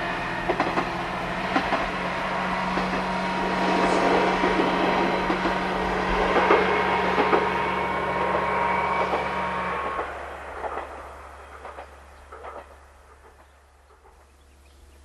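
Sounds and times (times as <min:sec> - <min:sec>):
diesel railcar engine: 0:00.0 - 0:15.0
rail noise: 0:00.0 - 0:15.0
wheels knocking over rail joints: 0:11.6 - 0:14.2.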